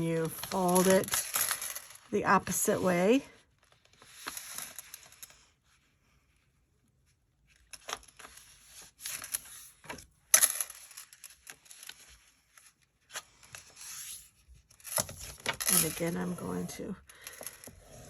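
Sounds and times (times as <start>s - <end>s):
paper being folded and creased: 7.6s - 10.0s, 11.1s - 16.8s.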